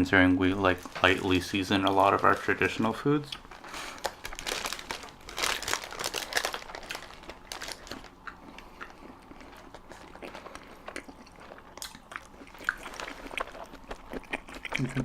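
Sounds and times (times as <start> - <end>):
chewing with wet mouth clicks: 8.2 - 15.0.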